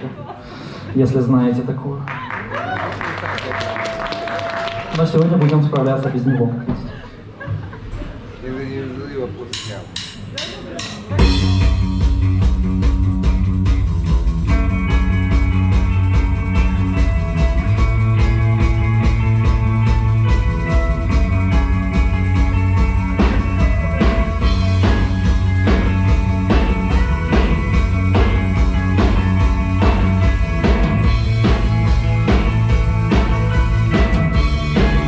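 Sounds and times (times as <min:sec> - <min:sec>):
drum kit hits: 0:09.5 - 0:35.0
rock band playing live: 0:09.6 - 0:35.0.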